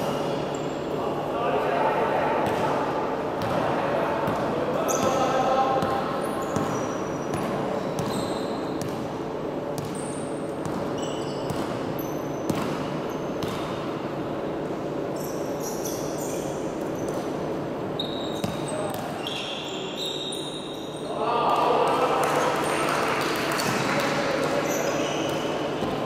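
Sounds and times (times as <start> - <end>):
sneakers squeaking: 0.0 - 1.0, 2.4 - 21.2, 23.5 - 26.0
basketball bouncing on court: 4.2 - 9.1, 9.8 - 13.8, 18.3 - 19.2
crowd noise: 18.2 - 26.0.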